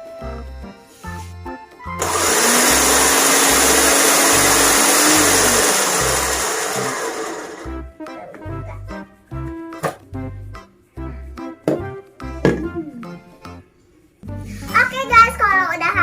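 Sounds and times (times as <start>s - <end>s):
background music with steady beat: 0.0s - 16.0s
blender grinding oats: 2.0s - 7.8s.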